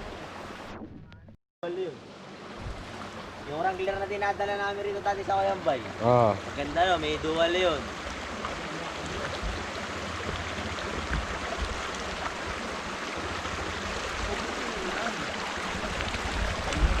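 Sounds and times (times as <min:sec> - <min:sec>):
wind buffeting microphone: 0:09.3 - 0:17.0.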